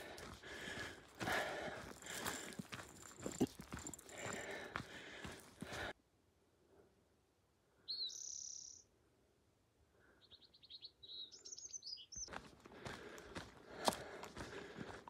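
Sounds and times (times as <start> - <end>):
footsteps on dirt trail: 0.0 - 6.0, 12.2 - 15.0
songbird singing: 7.8 - 8.9, 10.1 - 12.6.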